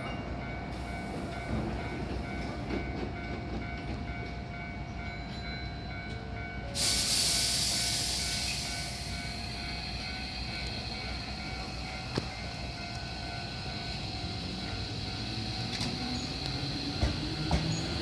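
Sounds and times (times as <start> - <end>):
electric train humming: 0.0 - 18.0
compressed air hiss: 6.8 - 9.5.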